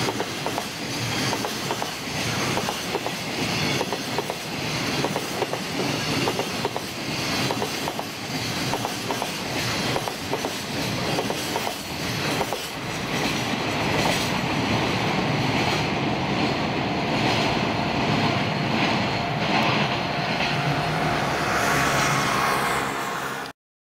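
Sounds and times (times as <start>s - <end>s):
train rumble: 0.0s - 23.5s.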